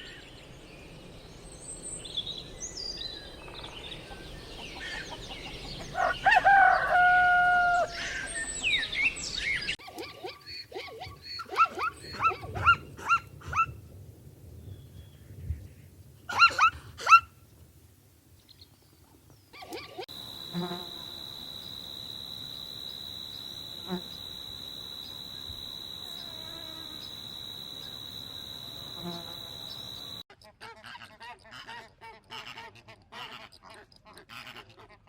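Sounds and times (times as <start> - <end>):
high-pitched insect drone: 20.1 - 30.2.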